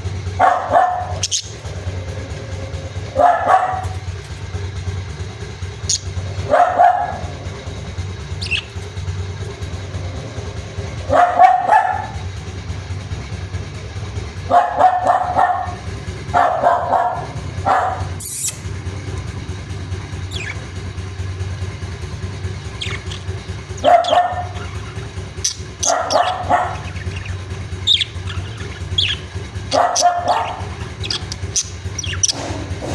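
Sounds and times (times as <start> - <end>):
budgies chirping: 0.0 - 32.9
steady low hum: 0.0 - 32.9
dog barking: 0.2 - 4.2, 5.9 - 8.8, 9.9 - 12.4, 14.3 - 18.6, 23.7 - 32.9.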